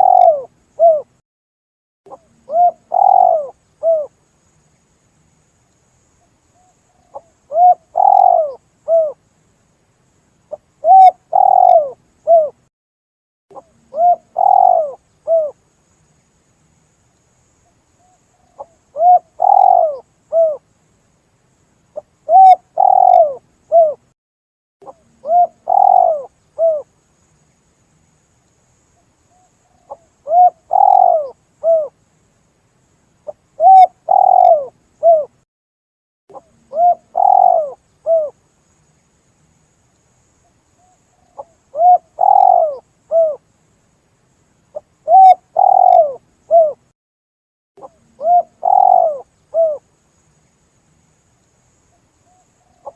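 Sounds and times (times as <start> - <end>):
dove cooing: 0.0 - 1.1, 2.1 - 4.1, 6.6 - 9.2, 10.5 - 12.6, 13.5 - 15.6, 18.5 - 20.6, 22.0 - 24.0, 24.8 - 26.9, 29.7 - 32.0, 33.3 - 35.4, 36.3 - 38.4, 41.2 - 43.4, 44.8 - 46.8, 47.8 - 49.8, 52.3 - 52.9.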